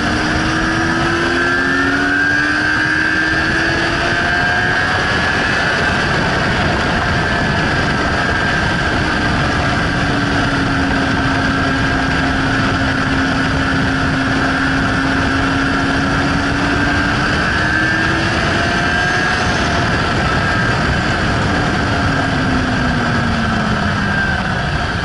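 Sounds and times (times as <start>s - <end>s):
motorcycle engine at high revs: 0.0s - 25.0s
wind noise on microphone: 0.0s - 25.0s.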